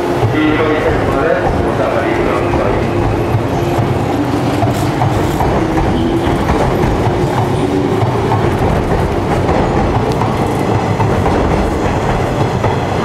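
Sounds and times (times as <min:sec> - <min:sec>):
train wheels clattering over rail joints: 0:00.2 - 0:13.0.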